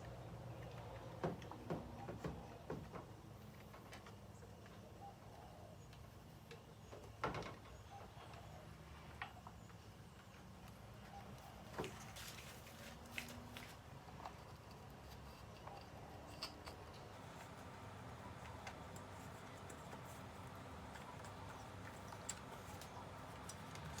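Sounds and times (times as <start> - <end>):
low steady hum: 0.0 - 24.0
tools and engine parts clicking: 14.2 - 17.6.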